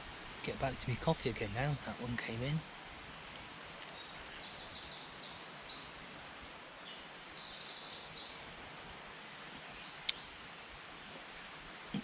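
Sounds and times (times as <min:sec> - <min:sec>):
songbird singing: 0:00.0 - 0:08.6, 0:09.6 - 0:10.5
background hiss: 0:00.0 - 0:12.0.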